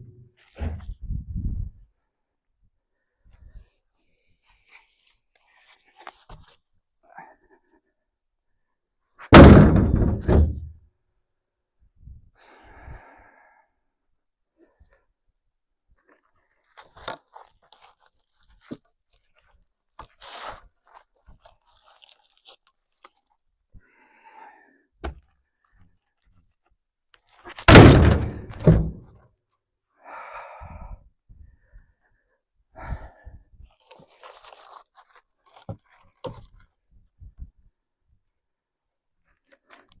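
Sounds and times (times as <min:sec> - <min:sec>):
logs knocking and scraping: 0:00.0 - 0:01.0, 0:09.2 - 0:10.8, 0:27.4 - 0:29.2
heavy wood thud: 0:09.3 - 0:10.7, 0:27.7 - 0:29.1.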